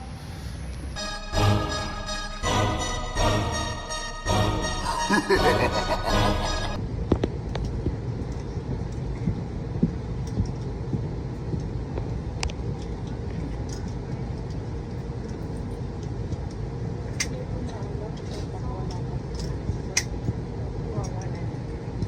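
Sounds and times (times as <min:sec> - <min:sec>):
steady low rumble: 0:00.0 - 0:22.0
background music: 0:01.0 - 0:06.8.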